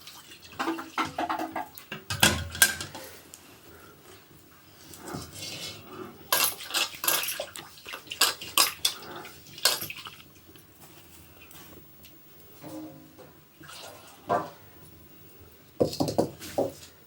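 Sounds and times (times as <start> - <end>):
metal pots and utensils clinking: 0.0 - 3.1, 5.0 - 10.2, 12.6 - 13.5.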